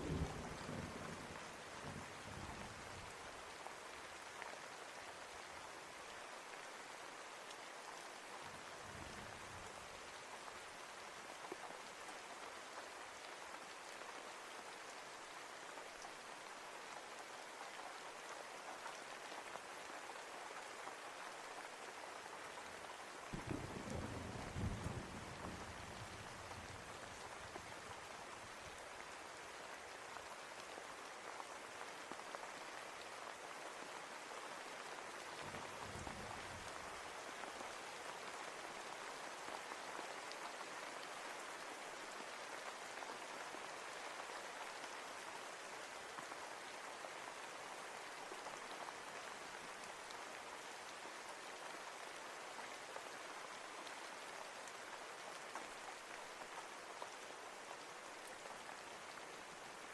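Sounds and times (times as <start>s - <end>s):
rain pattering on surfaces: 0.0s - 59.9s
distant thunder rumble: 23.4s - 26.2s.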